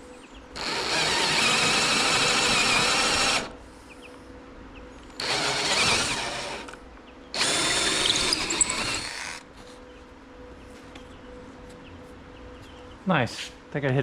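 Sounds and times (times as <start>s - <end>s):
electric drill boring: 0.6s - 3.6s, 5.2s - 6.8s, 7.4s - 9.4s.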